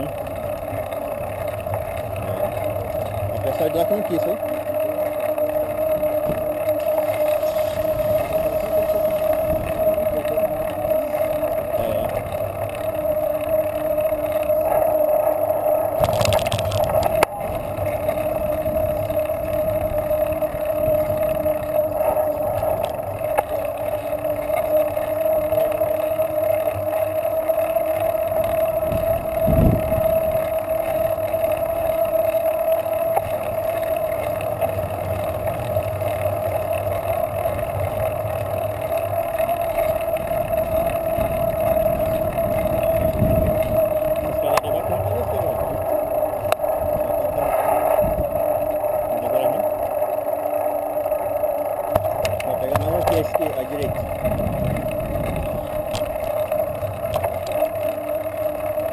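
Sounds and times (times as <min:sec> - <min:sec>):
road riding noise: 0:00.0 - 0:58.9.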